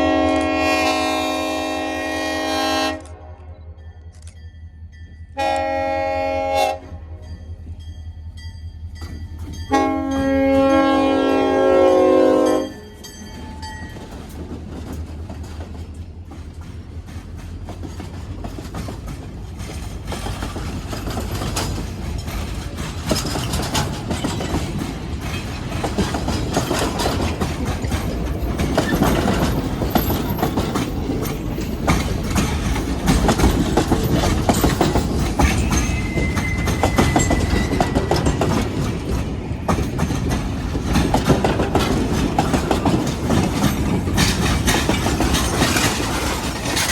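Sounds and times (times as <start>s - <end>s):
locomotive air horn blasts: 0.0s - 3.5s, 5.4s - 7.2s, 9.7s - 12.8s
train rumbling past: 0.0s - 46.9s
wheels clicking over rail joints: 12.8s - 46.9s.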